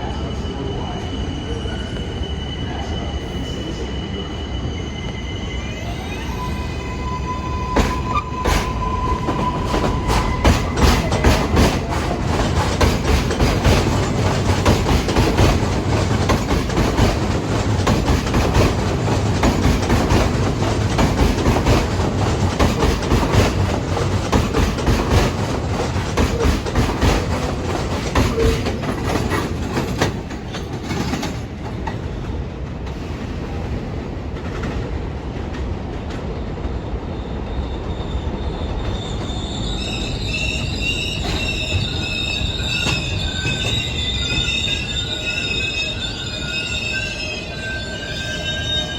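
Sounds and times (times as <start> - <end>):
high-pitched wheel squeal: 0.2 - 12.1, 37.6 - 48.9
train wheels clattering over rail joints: 7.8 - 32.0.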